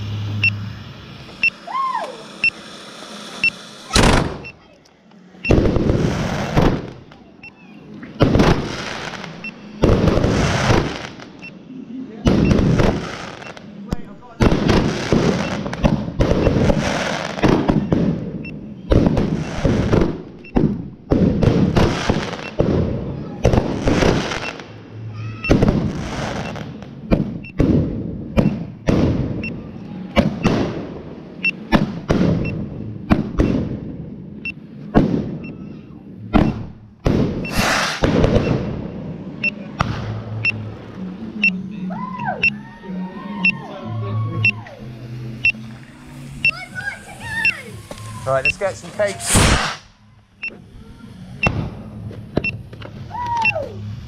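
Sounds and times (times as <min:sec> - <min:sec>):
fireworks bangs: 0:00.0 - 0:04.6, 0:05.4 - 0:07.3, 0:08.1 - 0:11.5, 0:12.2 - 0:35.5, 0:36.2 - 0:40.7, 0:45.4 - 0:50.0
fireworks hissing crackle: 0:00.0 - 0:07.2, 0:08.1 - 0:11.4, 0:12.3 - 0:27.0, 0:37.1 - 0:39.2, 0:45.1 - 0:50.0.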